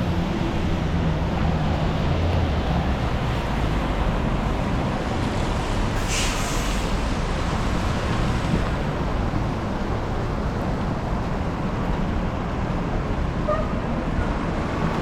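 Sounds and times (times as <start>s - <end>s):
traffic rumble: 0.0s - 15.0s
short sharp hiss: 6.0s - 7.0s.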